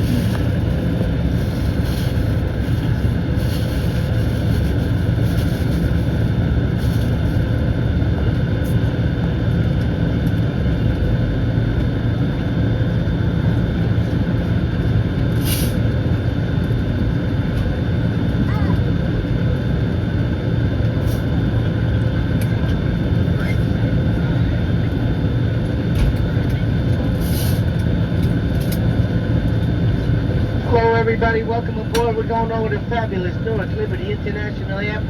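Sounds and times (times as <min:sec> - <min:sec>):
airliner cabin rushing hum: 0:00.0 - 0:35.0.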